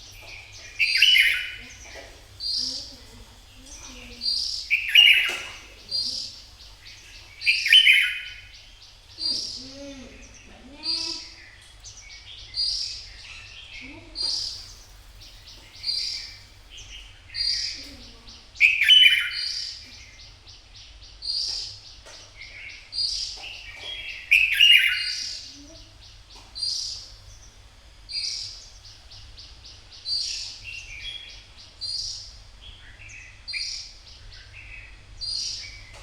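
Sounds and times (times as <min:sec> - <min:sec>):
faint low hum: 0:00.0 - 0:36.0
bird singing whistled phrases: 0:04.7 - 0:05.6, 0:18.6 - 0:19.6.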